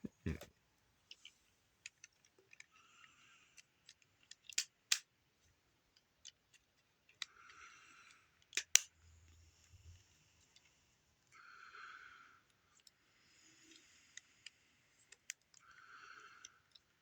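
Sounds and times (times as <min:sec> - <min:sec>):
plastic toy pieces clicking: 0:03.8 - 0:05.1, 0:08.4 - 0:08.9.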